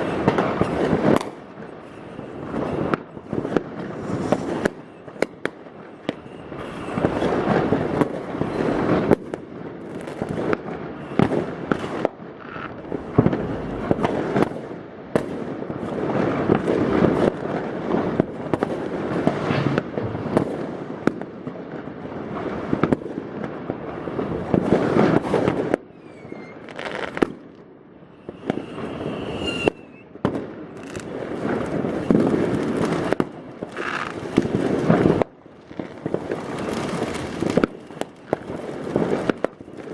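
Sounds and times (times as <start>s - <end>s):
fireworks bangs echoing: 0.0s - 39.9s
fireworks crackling and popping: 0.0s - 39.9s
rocket whistles rising: 6.1s - 7.8s, 25.9s - 27.2s, 28.0s - 30.2s.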